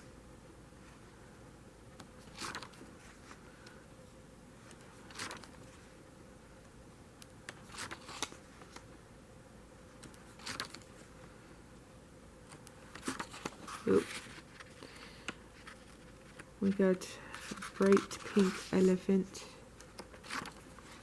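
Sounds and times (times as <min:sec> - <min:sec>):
paper pages rustling: 0:02.2 - 0:03.4, 0:04.6 - 0:05.8, 0:07.5 - 0:08.9, 0:10.0 - 0:11.0, 0:12.5 - 0:19.0, 0:19.8 - 0:21.0.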